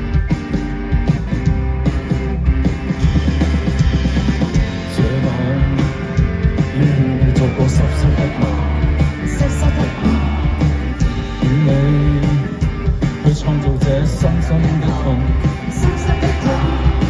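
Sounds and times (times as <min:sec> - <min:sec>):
bass and drums: 0:00.0 - 0:17.0
electric guitar: 0:00.0 - 0:17.0
person singing: 0:04.8 - 0:06.1, 0:06.7 - 0:12.6, 0:13.2 - 0:17.0.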